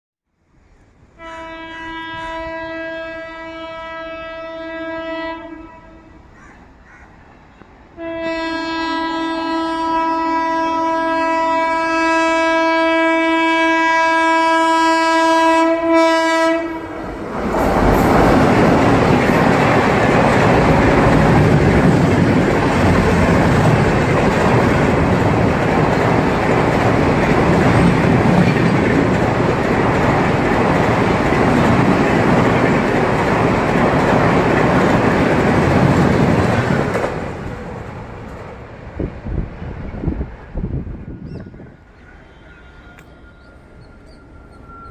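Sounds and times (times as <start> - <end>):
train horn blasts: 1.2 - 6.3, 8.0 - 17.1, 42.0 - 44.9
train wheels rushing on rail: 15.6 - 44.9.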